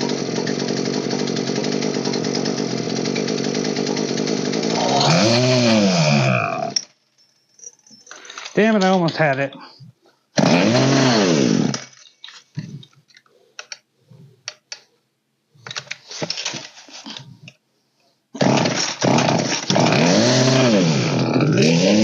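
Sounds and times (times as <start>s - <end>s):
chainsaw engine revving: 0.0s - 6.8s, 10.4s - 11.9s, 18.4s - 22.0s
clicks and rattles: 6.7s - 9.3s, 15.6s - 17.6s.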